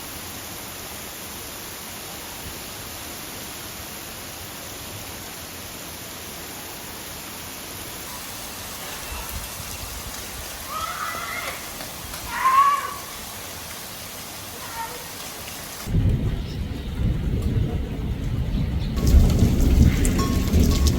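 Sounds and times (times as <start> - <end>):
steady rain falling: 0.0 - 20.9.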